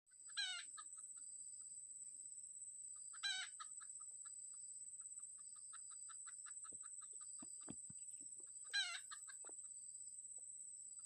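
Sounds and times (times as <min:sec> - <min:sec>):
junglefowl clucking: 0:00.2 - 0:01.0, 0:03.0 - 0:04.4, 0:05.0 - 0:09.7
junglefowl harsh call: 0:00.3 - 0:00.8, 0:03.2 - 0:03.7, 0:08.7 - 0:09.5.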